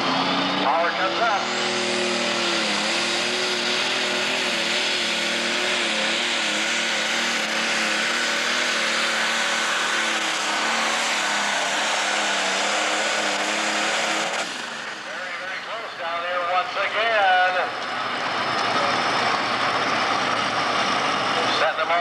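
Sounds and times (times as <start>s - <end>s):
diesel engine under heavy load: 0.0s - 22.0s.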